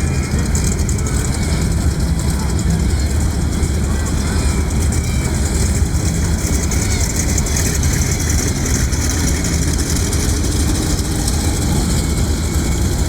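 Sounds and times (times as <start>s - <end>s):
piston aircraft engines rumbling: 0.0s - 13.0s.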